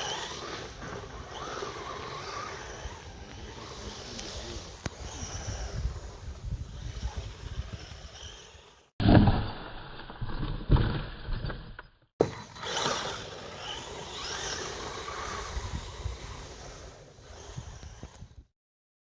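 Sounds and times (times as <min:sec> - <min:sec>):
rc car motor whine: 0:00.0 - 0:08.9, 0:12.2 - 0:18.5
tyre and wind rumble: 0:00.1 - 0:08.6, 0:12.6 - 0:18.5.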